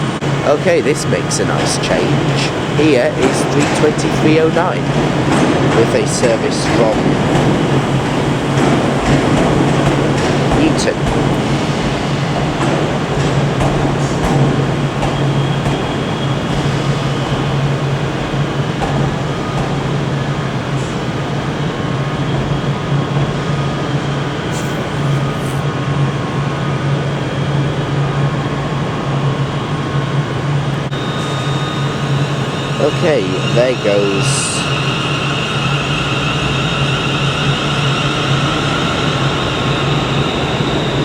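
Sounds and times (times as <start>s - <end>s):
electric train hum and rumble: 0.0s - 41.0s.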